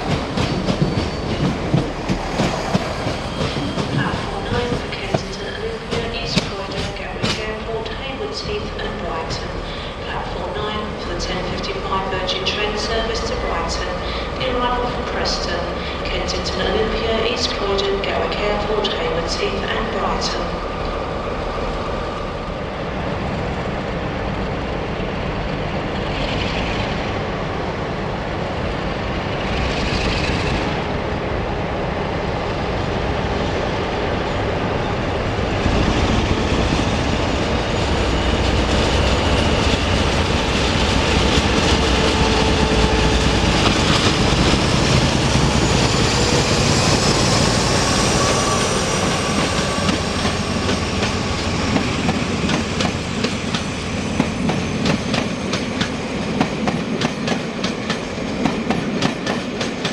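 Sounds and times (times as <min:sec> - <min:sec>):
wheels squealing on rails: 0:00.0 - 0:05.7, 0:35.8 - 0:56.2
train rumbling on rails: 0:00.0 - 0:59.9.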